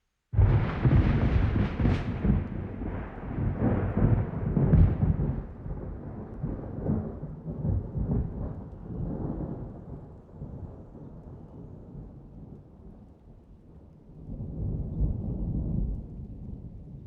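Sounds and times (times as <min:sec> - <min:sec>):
rain: 0:00.3 - 0:17.0
thunder rumbling: 0:00.4 - 0:12.6.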